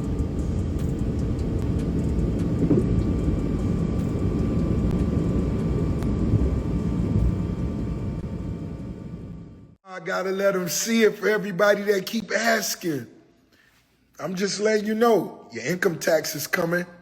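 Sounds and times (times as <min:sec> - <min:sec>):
faint steady whine: 0:00.0 - 0:09.8
low engine rumble: 0:00.0 - 0:09.8.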